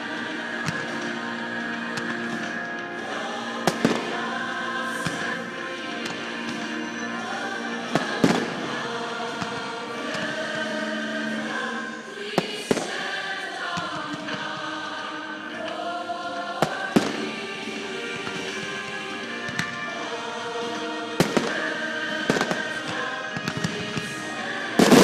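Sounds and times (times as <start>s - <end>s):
choral music with singing: 0.0s - 25.0s
fireworks bangs: 24.8s - 25.0s.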